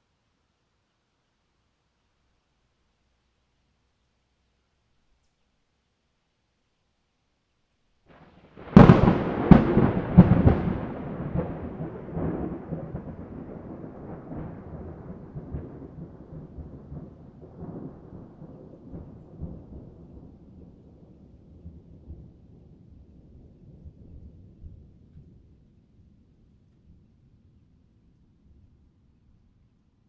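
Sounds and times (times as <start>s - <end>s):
thunder cracks and rumble: 8.1s - 25.4s.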